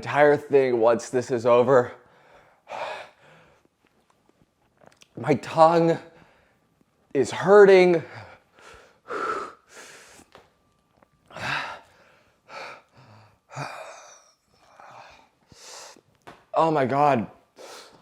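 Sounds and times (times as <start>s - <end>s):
man gasping and breathing hard: 8.0s - 10.3s, 11.3s - 16.0s.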